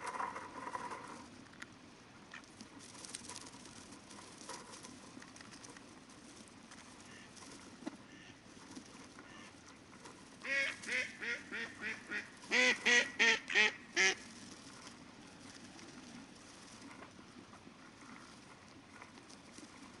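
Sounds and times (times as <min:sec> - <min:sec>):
faint river hiss: 0:00.0 - 0:20.0
ducks quacking: 0:07.0 - 0:08.4, 0:09.2 - 0:09.6, 0:10.4 - 0:14.2.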